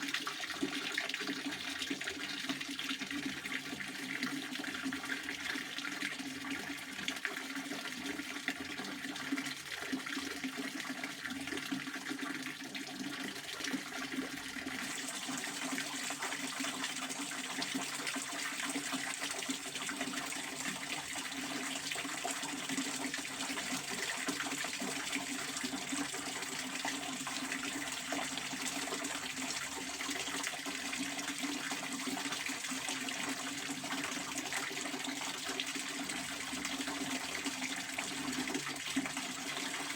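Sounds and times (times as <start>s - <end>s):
fountain water splashing: 14.8s - 19.8s.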